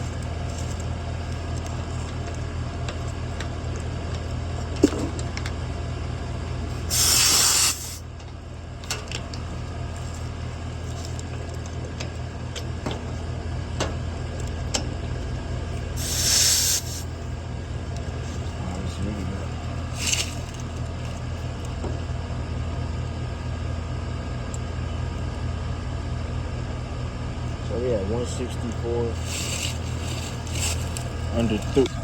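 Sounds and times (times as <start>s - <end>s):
steady low hum: 0.0s - 32.0s
refrigerant hissing: 6.9s - 8.1s, 16.0s - 17.2s, 19.9s - 20.5s, 29.0s - 32.0s.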